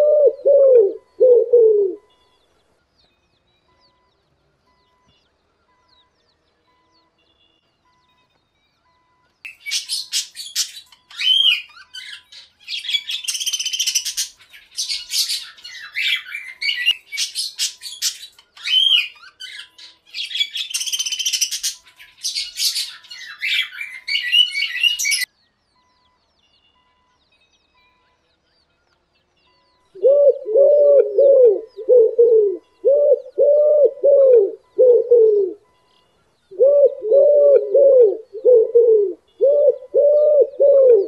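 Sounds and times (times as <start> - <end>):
high-pitched bird chirps and squawks: 9.5 - 25.3.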